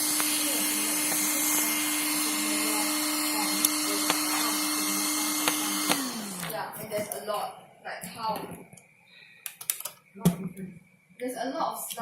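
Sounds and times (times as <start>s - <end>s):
electric motor humming: 0.0s - 6.8s.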